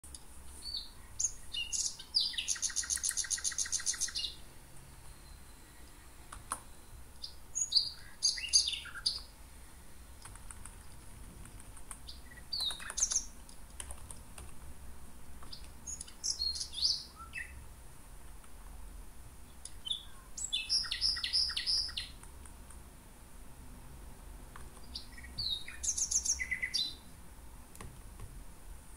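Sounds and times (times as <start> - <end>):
birds chirping: 0.0 - 13.5, 14.1 - 17.8, 19.4 - 22.3, 24.6 - 27.1
bird trill: 0.6 - 9.3, 12.1 - 13.3, 15.8 - 17.6, 19.6 - 22.2, 24.9 - 27.0.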